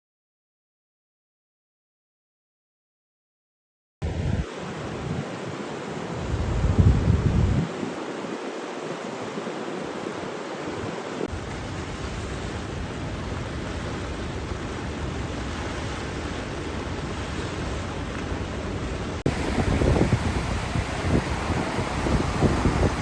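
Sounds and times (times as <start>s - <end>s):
rushing water: 4.4s - 23.0s
wind rumble on microphone: 6.2s - 8.1s, 12.0s - 23.0s.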